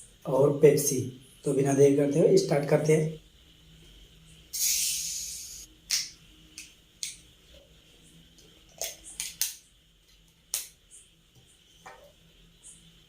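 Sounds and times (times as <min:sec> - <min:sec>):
sharp clicks and cracks: 0:08.7 - 0:10.8.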